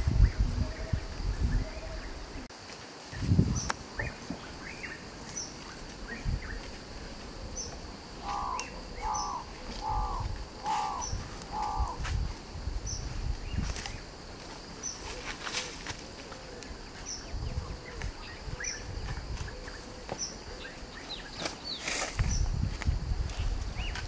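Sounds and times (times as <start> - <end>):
bird giving harsh calls: 8.2 - 12.0.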